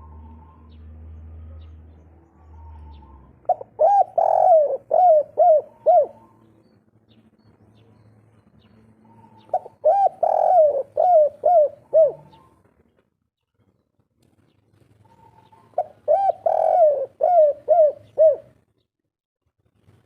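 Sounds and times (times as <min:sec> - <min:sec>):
dove cooing: 0:02.4 - 0:06.5, 0:09.0 - 0:12.7, 0:15.0 - 0:18.6.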